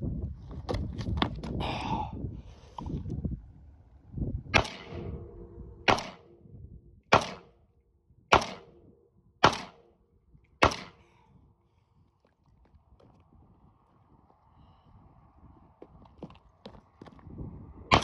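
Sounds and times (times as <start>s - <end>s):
low rumble: 2.2s - 9.4s
rifle shots with echo: 4.6s - 6.4s, 7.1s - 7.6s, 8.3s - 10.0s, 10.6s - 11.0s.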